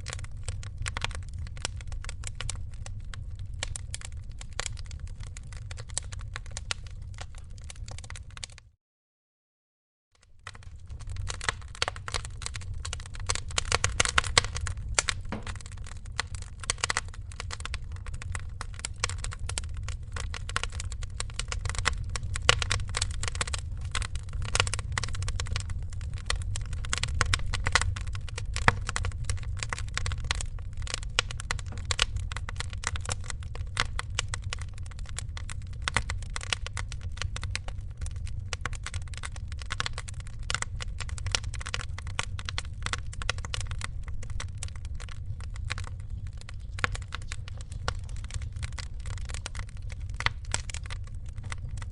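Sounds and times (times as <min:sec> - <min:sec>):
fire crackling and popping: 0:00.0 - 0:08.8, 0:10.2 - 0:51.9
steady low rumble: 0:10.4 - 0:51.9.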